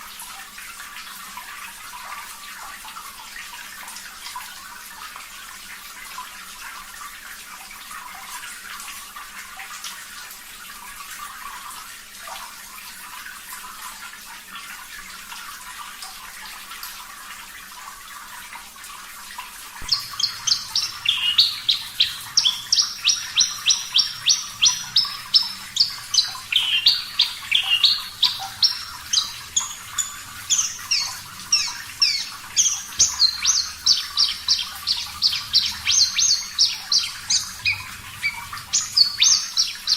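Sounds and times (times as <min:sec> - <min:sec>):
running water trickling: 0:00.0 - 0:39.9
bird singing sharp high notes: 0:19.8 - 0:39.9.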